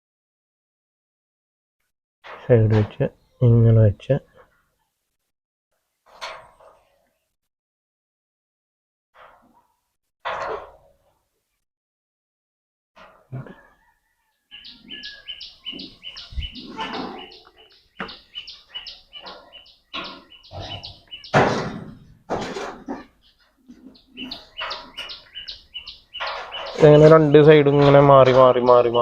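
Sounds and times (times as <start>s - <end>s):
bird chirping: 13.8s - 21.8s, 22.9s - 29.0s.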